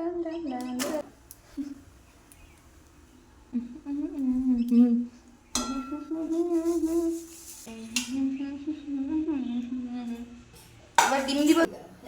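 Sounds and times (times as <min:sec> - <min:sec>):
person humming: 0:03.5 - 0:05.2, 0:05.9 - 0:10.4.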